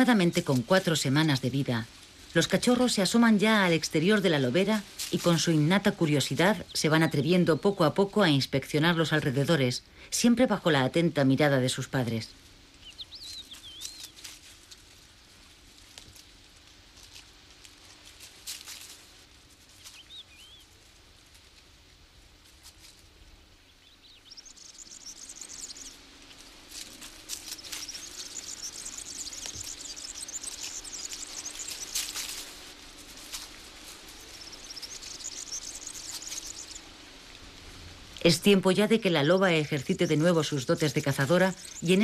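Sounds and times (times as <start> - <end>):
small birds chirping: 0.0 - 21.5, 22.4 - 42.0
rapid high-pitched chirping trills: 12.8 - 14.3, 23.9 - 26.0, 26.7 - 37.0, 39.7 - 42.0.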